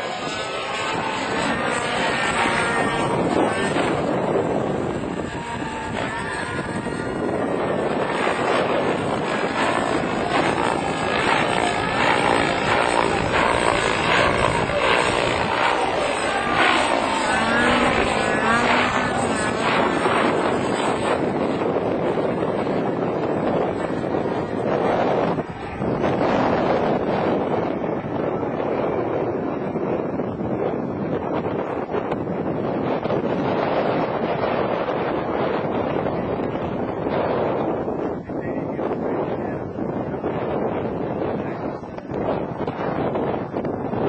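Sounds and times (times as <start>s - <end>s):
helicopter engine and rotor: 0.0s - 33.6s.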